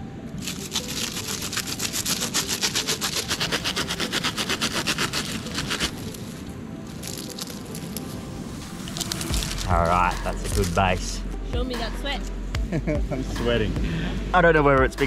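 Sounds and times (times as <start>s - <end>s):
rapid rhythmic scraping: 0.4s - 6.1s.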